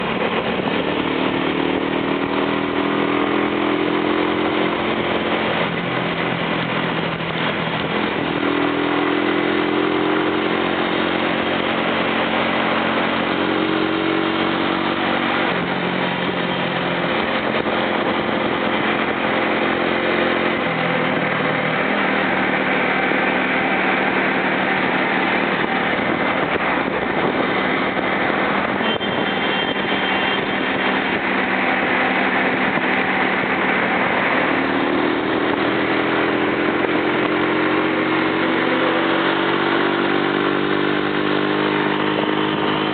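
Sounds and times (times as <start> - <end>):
traffic rushing: 0.0 - 42.9
truck engines droning: 0.0 - 42.9.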